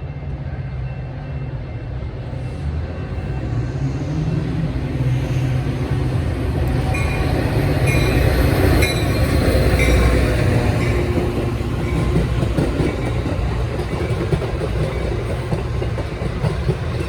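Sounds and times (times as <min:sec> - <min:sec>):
train rumbling past: 0:00.0 - 0:17.0
wheels clicking over rail joints: 0:06.6 - 0:17.0.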